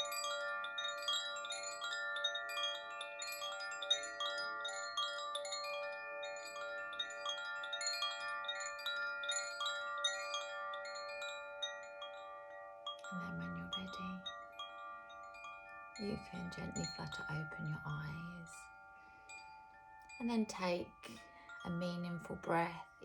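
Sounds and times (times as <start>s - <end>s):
wind chimes ringing: 0.0s - 23.0s.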